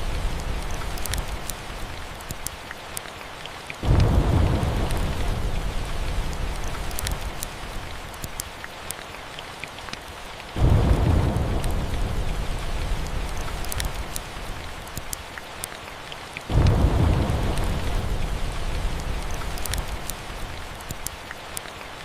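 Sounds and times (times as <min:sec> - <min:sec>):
steady rain: 0:00.0 - 0:22.0
thunder rolling: 0:03.8 - 0:07.7, 0:10.6 - 0:14.4, 0:16.5 - 0:20.0.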